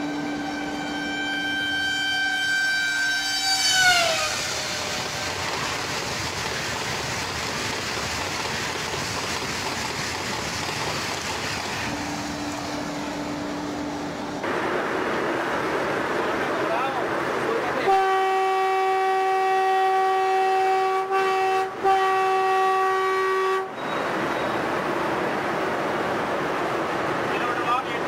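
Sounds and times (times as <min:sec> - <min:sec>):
train horn: 0:00.0 - 0:05.0, 0:17.8 - 0:23.8
train carriages rushing past: 0:00.0 - 0:18.8
steady low tone: 0:11.9 - 0:14.5.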